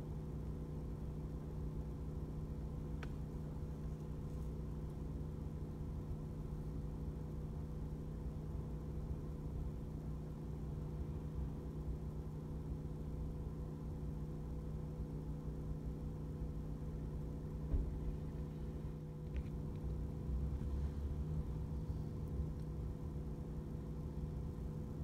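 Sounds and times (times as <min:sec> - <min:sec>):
vehicle engine idling: 0:00.0 - 0:25.0
brief knock: 0:17.7 - 0:18.1.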